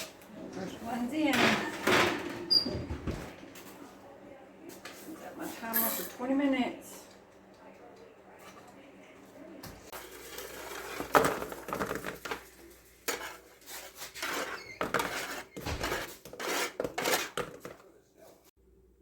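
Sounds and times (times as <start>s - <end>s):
pans and metal utensils clattering: 0.0s - 3.8s, 4.9s - 6.4s, 9.9s - 17.9s.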